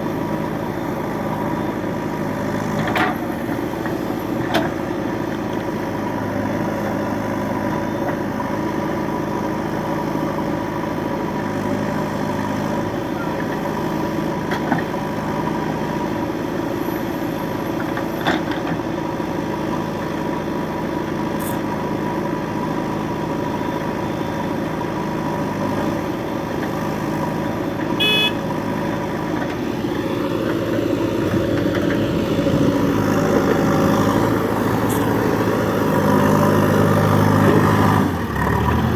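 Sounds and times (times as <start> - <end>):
diesel engines running: 0.0 - 38.9
short beep: 28.0 - 28.4.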